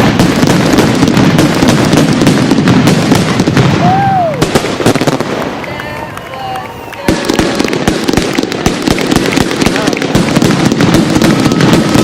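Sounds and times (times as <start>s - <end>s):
fireworks bangs and crackles: 0.0s - 12.0s
firework whistle: 3.1s - 5.2s, 6.3s - 12.0s.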